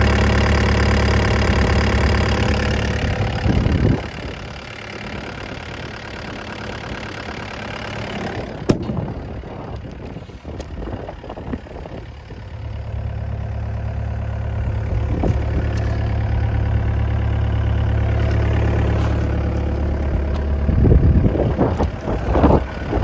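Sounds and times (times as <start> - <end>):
excavator diesel engine idling: 0.0 - 23.0.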